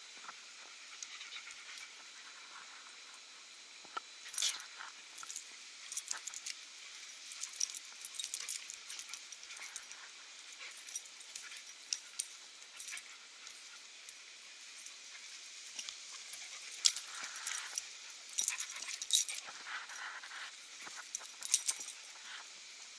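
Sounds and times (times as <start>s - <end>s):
light jingling: 7.2s - 22.2s.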